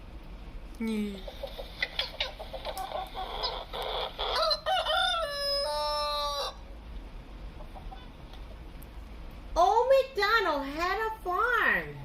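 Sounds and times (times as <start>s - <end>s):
rooster clucking: 1.2s - 6.6s, 7.6s - 8.2s
rooster crowing: 3.4s - 6.6s.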